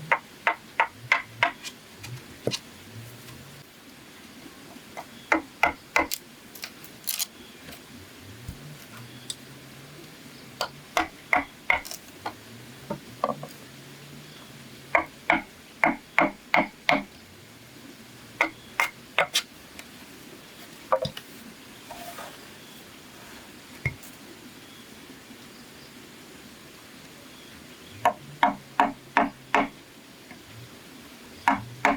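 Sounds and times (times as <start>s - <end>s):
tool striking bamboo: 0.1s - 1.7s, 5.0s - 7.2s, 10.6s - 12.4s, 15.0s - 17.1s, 28.0s - 29.7s, 31.5s - 31.9s.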